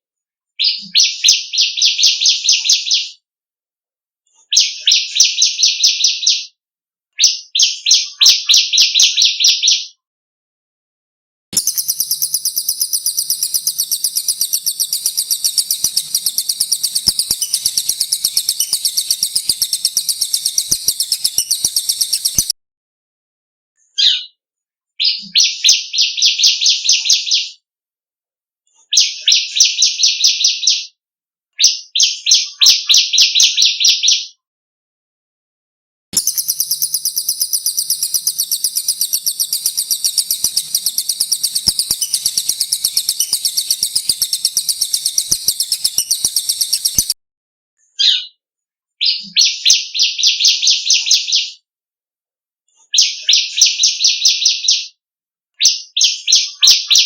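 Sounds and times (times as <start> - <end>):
bird rattling notes: 11.6 - 22.5, 36.2 - 47.1
high shrill bird trill: 11.6 - 22.5, 36.2 - 47.2.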